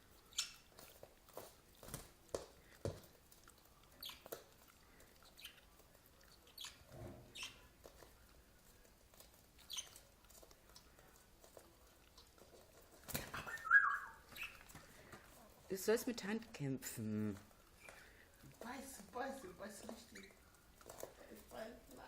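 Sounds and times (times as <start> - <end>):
small animal scuffling: 0.0 - 22.0.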